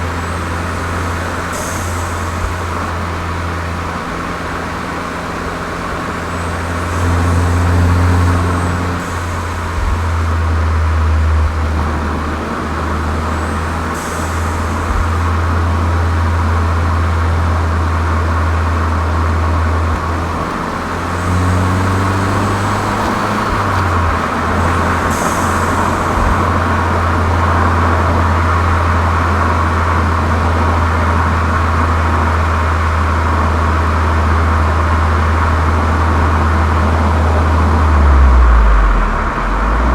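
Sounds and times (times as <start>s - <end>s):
car engine low drone: 0.0s - 39.9s.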